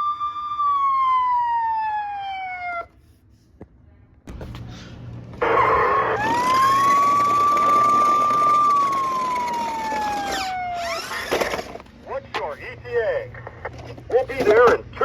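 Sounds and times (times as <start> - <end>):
toy siren wailing: 0.0 - 2.9, 5.4 - 11.8.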